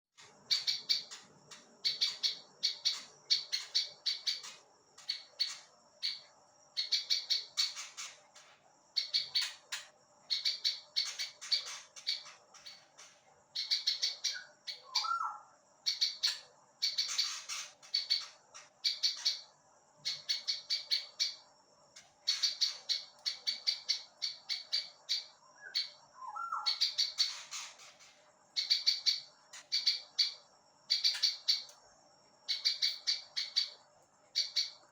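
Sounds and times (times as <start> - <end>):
bird singing high chirps: 0.2 - 8.2, 8.9 - 21.5, 22.2 - 31.8, 32.4 - 34.9.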